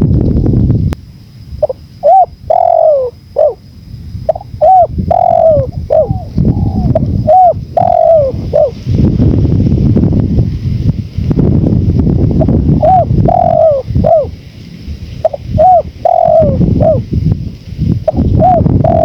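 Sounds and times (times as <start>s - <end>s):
low wind rumble: 0.0s - 19.0s
dove cooing: 1.6s - 3.6s, 4.3s - 8.8s, 12.4s - 14.3s, 15.2s - 17.1s, 18.0s - 19.0s.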